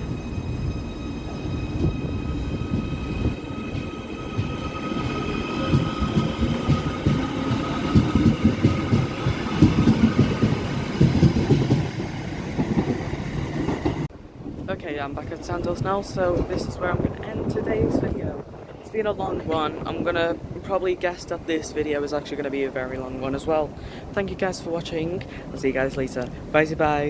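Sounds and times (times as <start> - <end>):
electric train whine: 0.0 - 14.1
wheels rumbling on track: 0.0 - 27.0.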